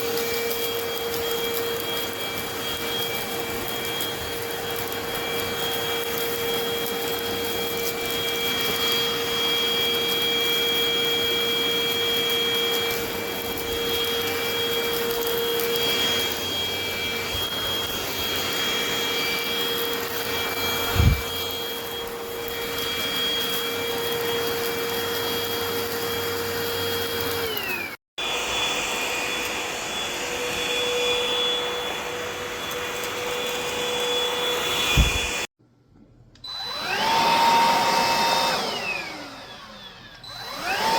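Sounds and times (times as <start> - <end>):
stick vacuum motor whine: 0.0 - 35.5, 36.4 - 40.9
thump: 34.9 - 35.4.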